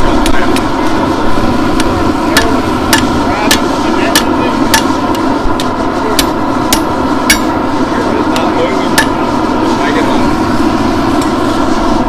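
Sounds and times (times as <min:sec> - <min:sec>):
hammer striking steel on anvil: 0:01.6 - 0:09.4.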